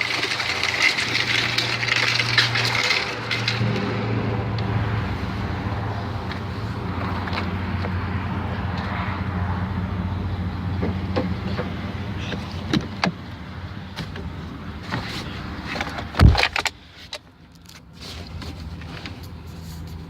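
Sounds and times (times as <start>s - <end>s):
rattles and clicks: 0.0s - 4.7s
road noise: 0.0s - 20.0s
truck engine hum: 0.0s - 20.0s.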